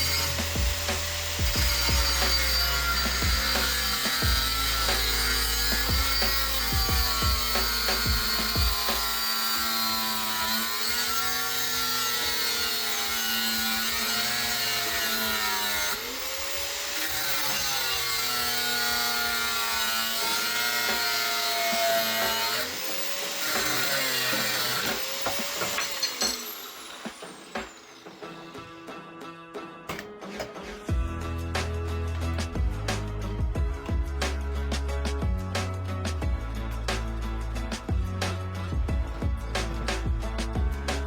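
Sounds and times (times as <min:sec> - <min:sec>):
hand saw cutting metal: 0:00.0 - 0:28.8, 0:29.8 - 0:41.0.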